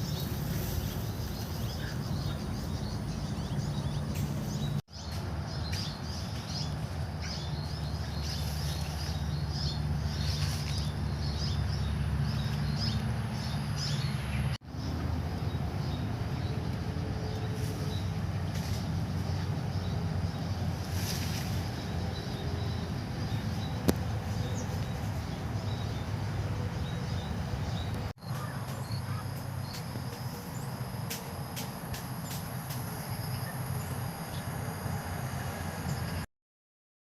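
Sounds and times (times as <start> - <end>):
birds chirping: 0.0 - 16.6.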